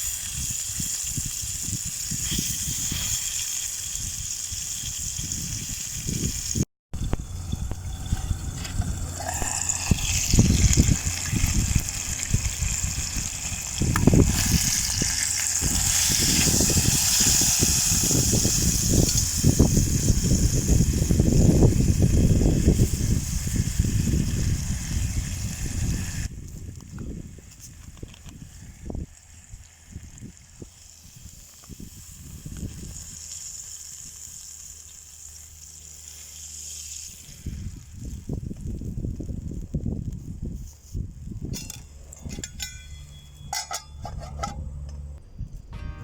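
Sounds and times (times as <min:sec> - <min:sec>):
food sizzling in a frying pan: 0:00.0 - 0:06.6, 0:07.2 - 0:26.3, 0:29.2 - 0:39.6
wind buffeting microphone: 0:03.9 - 0:33.2, 0:37.2 - 0:42.7.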